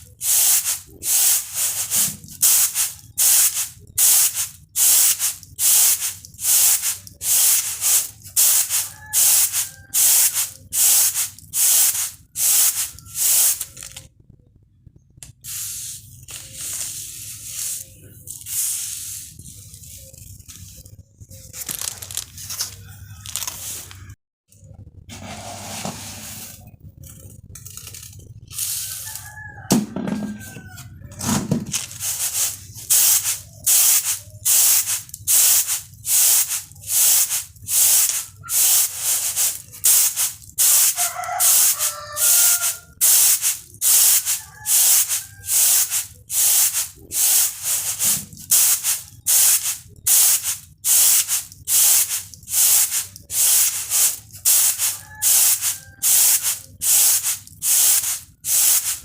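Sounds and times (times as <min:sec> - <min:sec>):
rice rattling in bamboo tray: 0:00.1 - 0:14.1, 0:19.8 - 0:24.1, 0:31.1 - 0:59.0
chickens clucking: 0:28.3 - 0:31.4, 0:44.4 - 0:45.6, 0:54.9 - 0:56.8.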